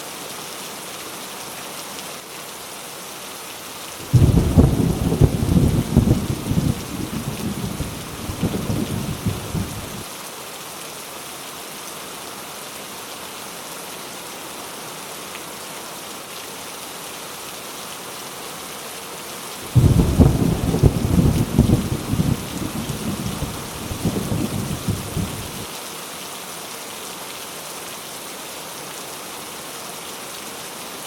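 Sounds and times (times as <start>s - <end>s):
heavy rain falling: 0.1s - 31.0s
rolling thunder rumble: 4.1s - 10.0s, 19.7s - 25.6s.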